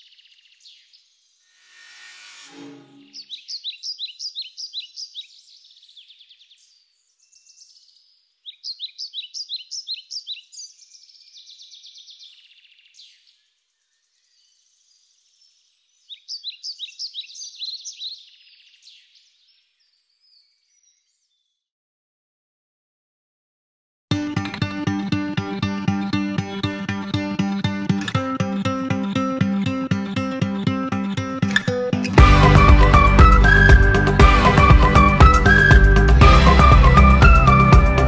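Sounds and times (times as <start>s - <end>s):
bird chirping: 0.0s - 21.6s
small bird singing high sharp notes: 1.5s - 5.8s.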